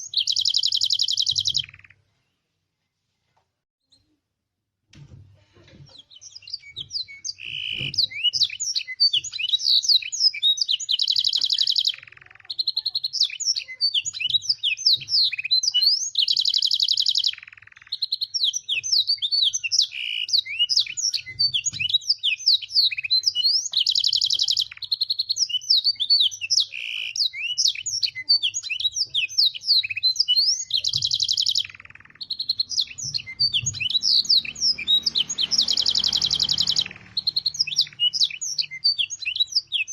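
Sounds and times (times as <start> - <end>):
canary singing: 0.0 - 2.1, 5.9 - 39.9.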